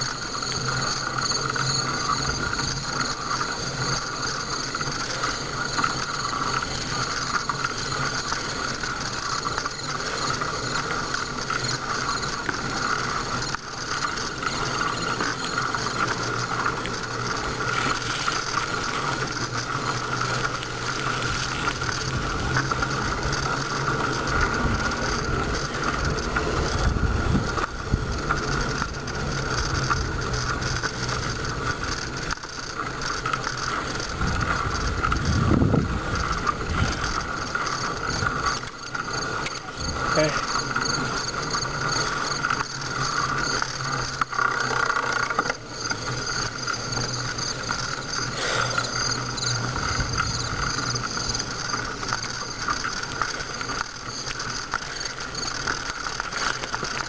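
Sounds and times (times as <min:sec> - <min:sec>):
bicycle freewheel ticking: 0:00.0 - 0:57.0
wind rumble on microphone: 0:20.6 - 0:32.3, 0:33.9 - 0:38.6, 0:49.3 - 0:51.4.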